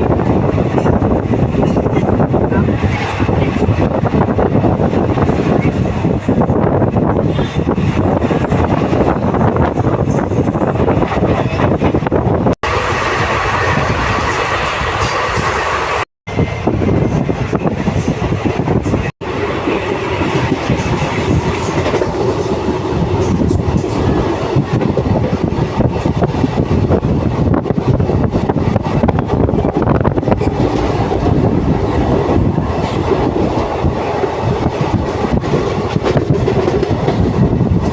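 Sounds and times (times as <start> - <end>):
train wheels clattering on rails: 16.7 - 37.9.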